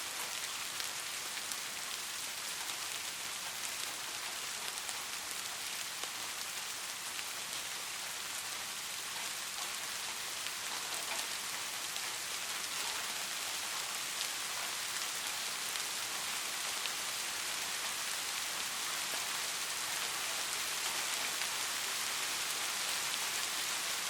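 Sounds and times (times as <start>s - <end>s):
soft rain falling: 0.0s - 24.0s
sharp rain drop ticks: 9.1s - 18.4s.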